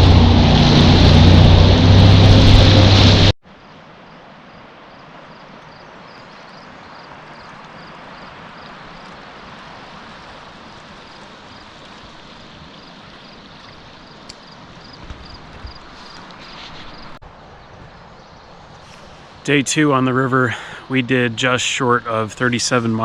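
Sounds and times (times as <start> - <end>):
river water rushing: 0.0 - 16.2.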